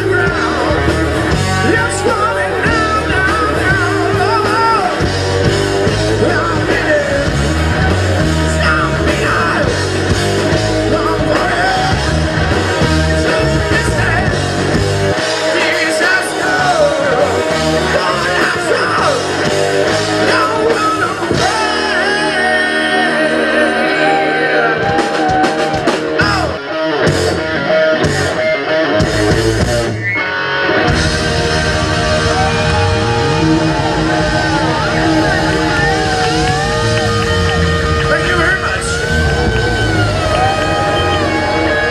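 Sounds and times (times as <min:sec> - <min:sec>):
person singing: 0:00.0 - 0:05.2, 0:05.8 - 0:09.9, 0:10.7 - 0:14.5, 0:15.2 - 0:19.5, 0:20.1 - 0:26.6
bass guitar: 0:00.0 - 0:41.9
drums: 0:00.0 - 0:41.9
electric guitars: 0:00.0 - 0:41.9.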